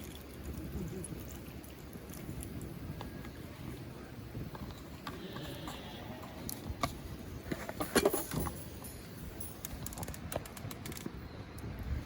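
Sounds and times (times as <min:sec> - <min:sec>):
clicks and knocks of handled objects: 0:06.4 - 0:11.7.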